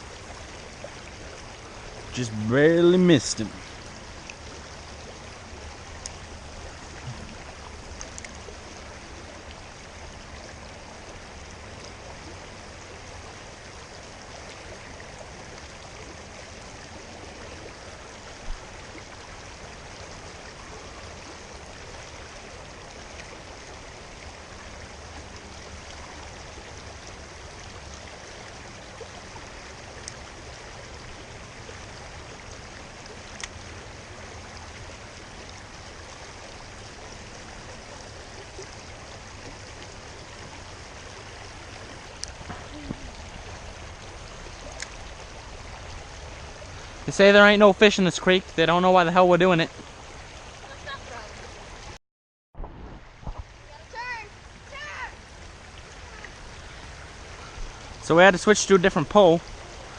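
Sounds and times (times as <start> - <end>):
creek water running: 0.0 - 52.0, 52.6 - 59.9
short low bump: 52.6 - 53.6.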